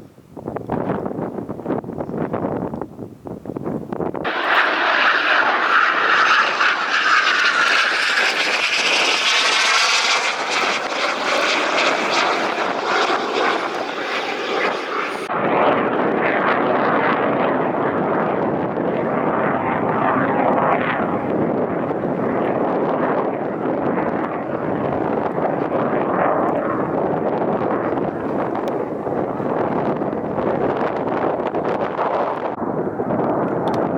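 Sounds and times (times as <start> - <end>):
wind noise on microphone: 0.0 - 33.9
fighter jet roar flying past: 4.3 - 27.0.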